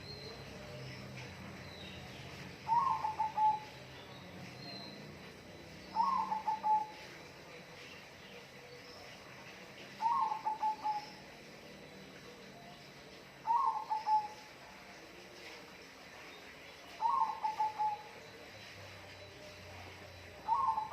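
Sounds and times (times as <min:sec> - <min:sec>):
dove cooing: 0:02.6 - 0:03.8, 0:06.0 - 0:07.2, 0:10.0 - 0:11.2, 0:13.4 - 0:14.5, 0:17.0 - 0:18.2, 0:20.2 - 0:20.9.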